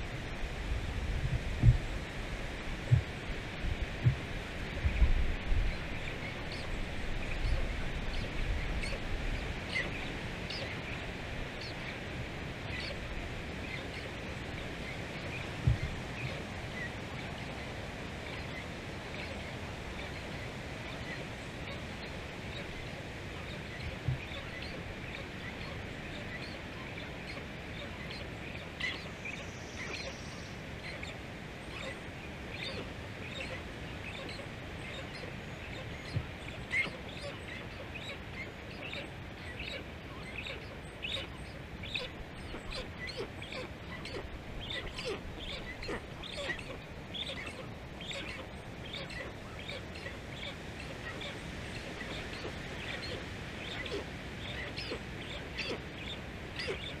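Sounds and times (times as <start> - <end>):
steady outdoor hiss: 0.0 - 57.0
brief low thumps: 1.3 - 1.9.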